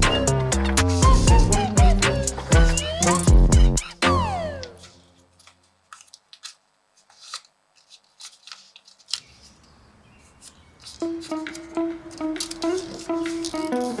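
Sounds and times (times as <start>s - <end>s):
music phrase: 0.0s - 5.0s
paper folding and creasing: 4.6s - 14.0s.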